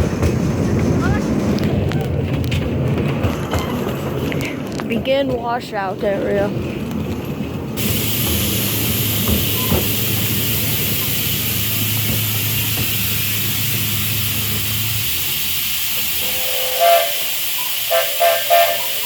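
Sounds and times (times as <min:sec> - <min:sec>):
steam locomotive hissing: 0:07.8 - 0:19.0
steam whistle toots: 0:16.0 - 0:19.0.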